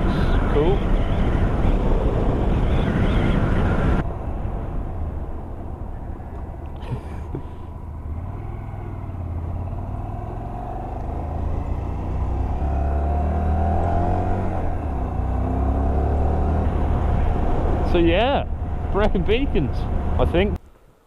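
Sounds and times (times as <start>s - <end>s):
motorcycle engine running: 7.9s - 20.3s.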